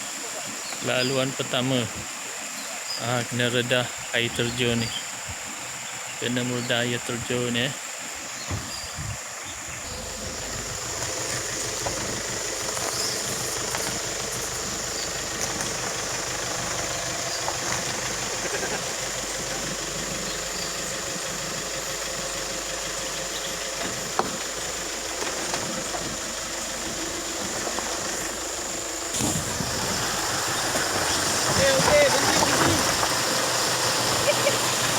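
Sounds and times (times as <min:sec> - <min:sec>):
vehicle engine running: 0:09.5 - 0:34.9
rushing water: 0:26.7 - 0:34.9.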